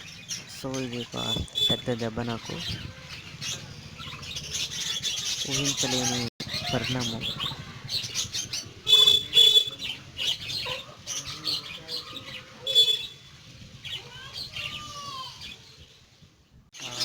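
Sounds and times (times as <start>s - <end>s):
birds calling and chirping: 0.0s - 17.0s
loud short bird calls: 2.6s - 15.6s.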